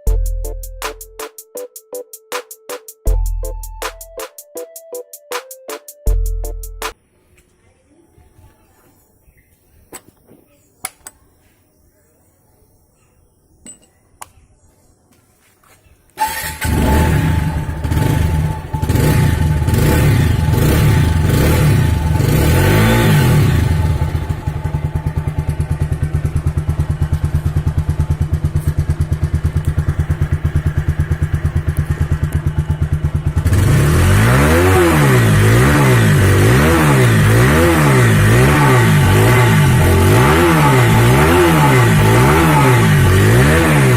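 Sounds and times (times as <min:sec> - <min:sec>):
motorcycle engine revving and idling: 0:16.2 - 0:43.9.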